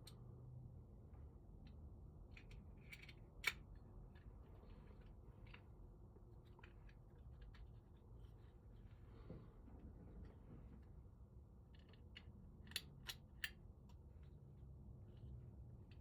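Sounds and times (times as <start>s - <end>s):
metal lock parts clicking: 11.7s - 13.6s.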